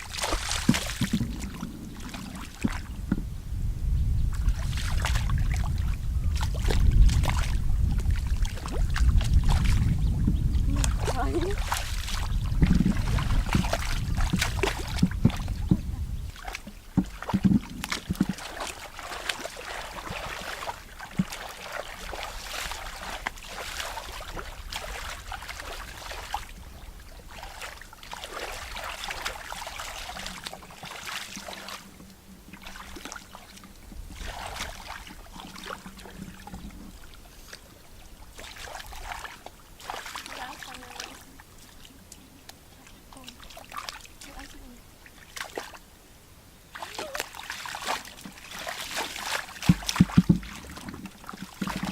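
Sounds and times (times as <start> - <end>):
water splashing and sloshing: 0.0 - 3.4, 4.2 - 51.9
sharp knocks: 49.6 - 50.6.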